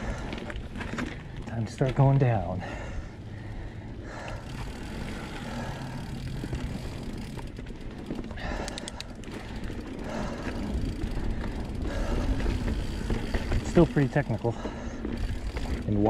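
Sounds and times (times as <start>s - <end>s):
tyres rumbling on dirt: 0.0s - 3.0s, 4.1s - 8.6s, 9.2s - 16.0s
bike rattling over bumps: 0.0s - 16.0s
high ticks: 8.5s - 9.2s.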